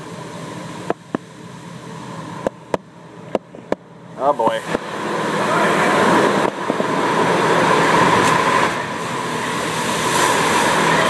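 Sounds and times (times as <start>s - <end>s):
car wash machinery whine: 0.0s - 11.0s
car wash spray and air rushing: 0.0s - 11.0s.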